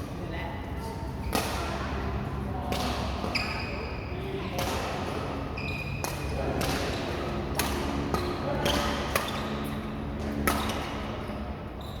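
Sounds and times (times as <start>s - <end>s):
shoes squeaking on court: 3.2s - 4.1s, 5.4s - 6.4s, 7.8s - 12.0s
rackets striking shuttlecock: 6.0s - 11.1s.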